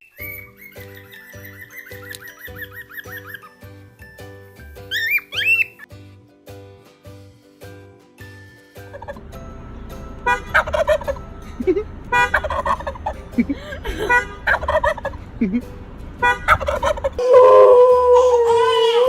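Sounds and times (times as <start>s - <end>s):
turkey gobbling: 4.9s - 5.9s, 8.9s - 9.2s, 10.2s - 11.3s, 12.2s - 15.2s, 16.2s - 18.3s.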